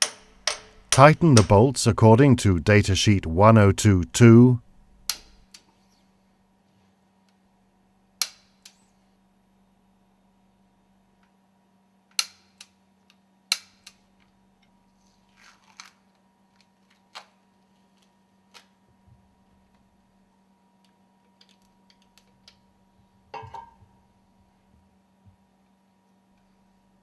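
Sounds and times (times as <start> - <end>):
faint steady hum: 0.0 - 12.1.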